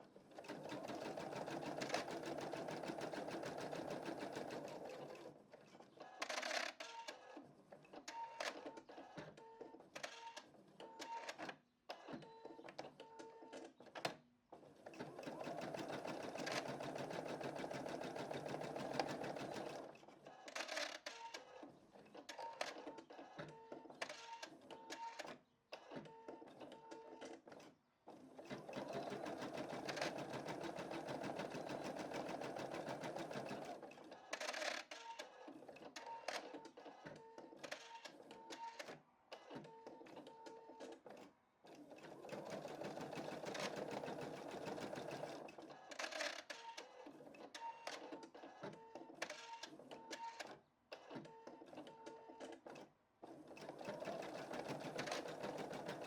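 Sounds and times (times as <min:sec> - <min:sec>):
embroidery machine stitching: 0:00.4 - 0:05.3, 0:15.0 - 0:19.9, 0:28.3 - 0:34.8, 0:41.7 - 0:46.4, 0:52.4 - 0:56.0.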